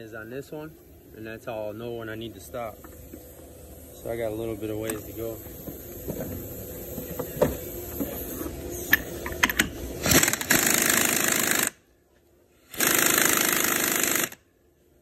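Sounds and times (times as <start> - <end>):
handheld power tool running: 10.0 - 11.8, 12.7 - 14.4.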